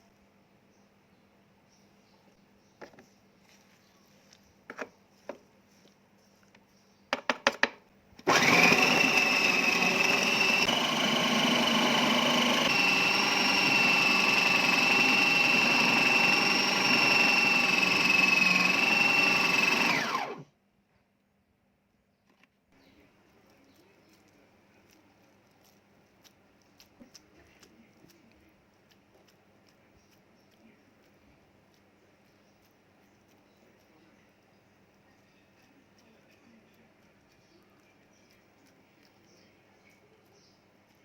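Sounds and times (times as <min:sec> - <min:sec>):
food processor clicks: 0:08.2 - 0:20.4
food processor whining: 0:08.2 - 0:20.5.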